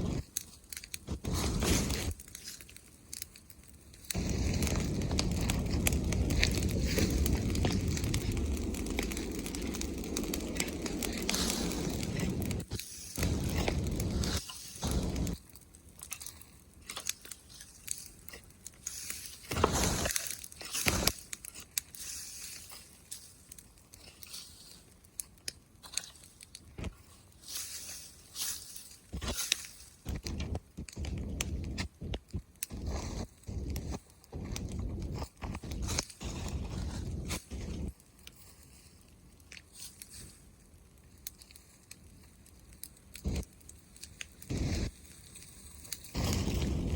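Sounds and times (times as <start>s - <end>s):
bonfire crackling and popping: 0.0s - 46.9s.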